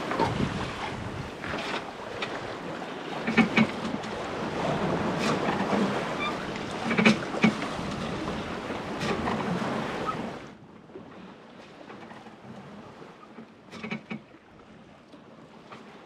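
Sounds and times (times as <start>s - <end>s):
wind on microphone: 0.0s - 1.7s
sharp knocks from boat: 0.0s - 10.3s, 13.3s - 14.4s
water sloshing along hull: 0.0s - 16.0s.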